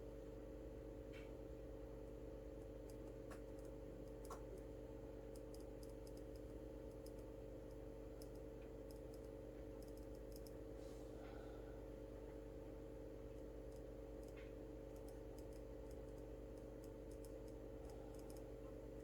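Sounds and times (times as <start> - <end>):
faint steady hum: 0.0 - 19.0
light clicks: 5.3 - 10.6, 13.4 - 18.5.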